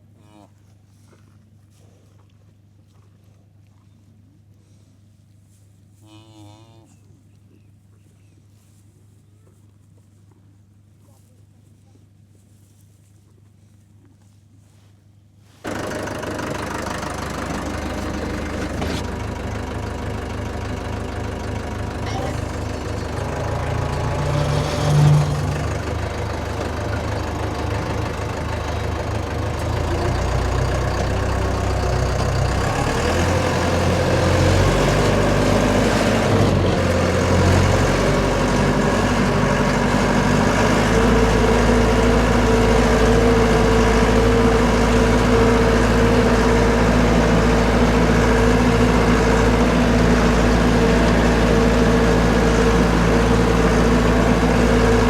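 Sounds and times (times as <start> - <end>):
engine running: 15.6 - 55.0.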